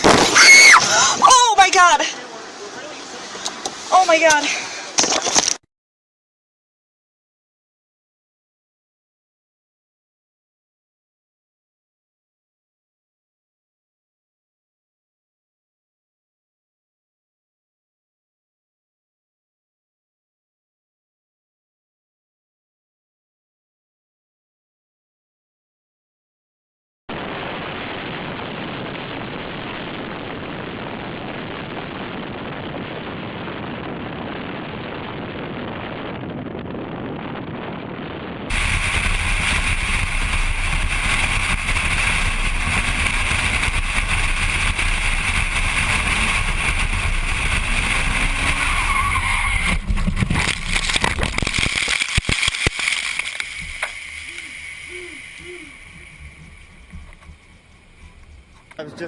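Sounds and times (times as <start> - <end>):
high whine: 27.1 - 59.0
car road rumble: 28.3 - 59.0.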